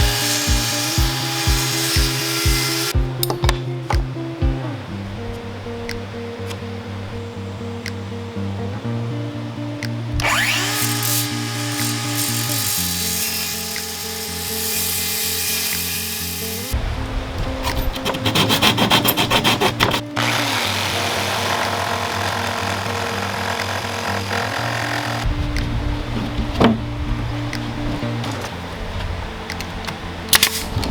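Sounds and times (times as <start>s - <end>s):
power tool working wood: 0.0s - 3.0s, 10.2s - 16.8s, 18.0s - 25.3s
rapid rhythmic strokes: 0.0s - 4.7s
background music: 0.0s - 30.9s.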